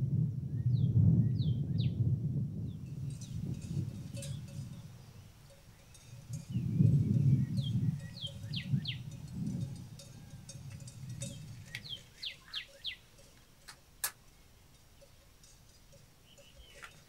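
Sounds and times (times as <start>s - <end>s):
bird chirping: 2.7s - 17.0s
sharp clicks: 13.4s - 14.2s.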